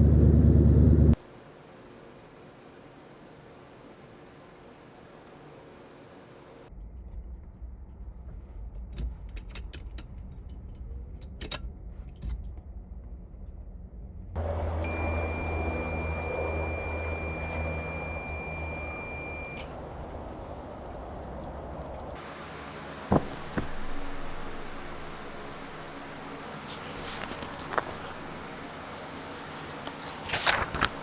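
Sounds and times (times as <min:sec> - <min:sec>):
low hum: 0:14.4 - 0:31.0
high electronic beep tone: 0:14.6 - 0:19.7.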